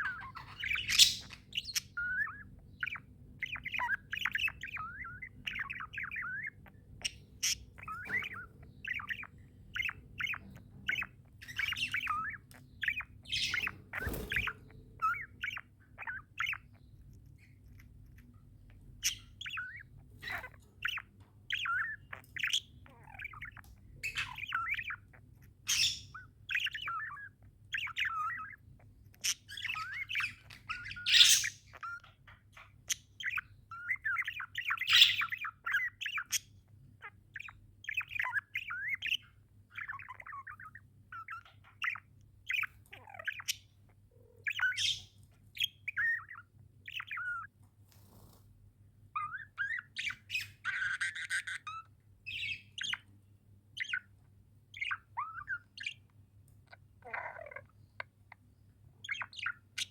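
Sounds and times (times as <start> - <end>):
budgerigar squawks: 0.0 - 16.6
budgerigars chirping and chattering: 0.0 - 59.9.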